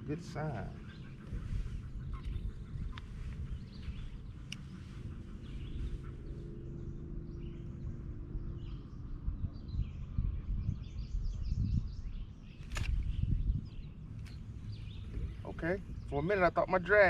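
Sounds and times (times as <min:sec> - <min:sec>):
birds chirping: 0:00.0 - 0:17.0
faint hum: 0:00.0 - 0:17.0
steady low rumble: 0:00.0 - 0:17.0
sharp click: 0:12.6 - 0:13.2.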